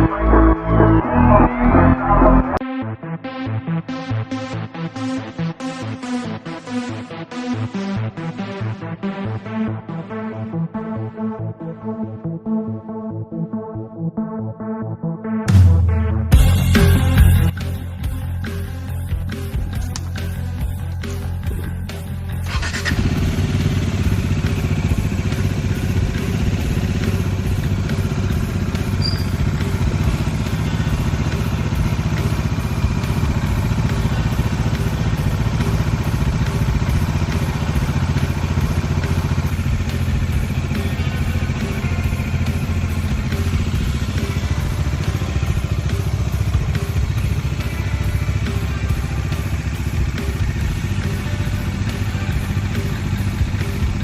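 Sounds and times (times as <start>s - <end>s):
motorcycle engine running: 16.3s - 54.0s.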